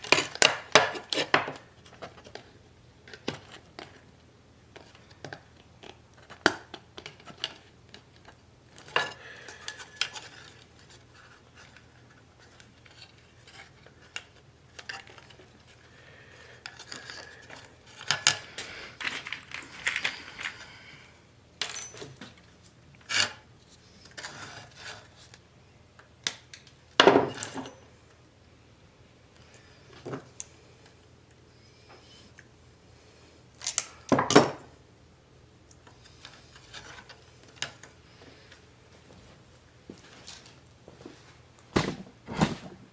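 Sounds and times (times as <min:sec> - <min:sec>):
metal tools clinking and knocking: 0:21.6 - 0:22.3.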